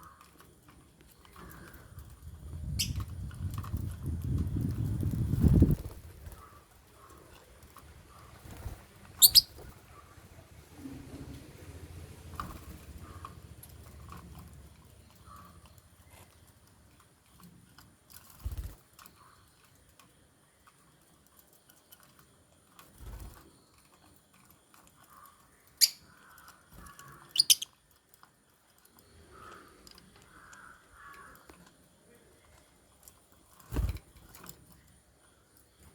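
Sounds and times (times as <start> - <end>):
lovebirds chirping: 2.6 - 3.1, 5.8 - 10.6, 25.0 - 27.8
faint clicks: 12.3 - 35.9.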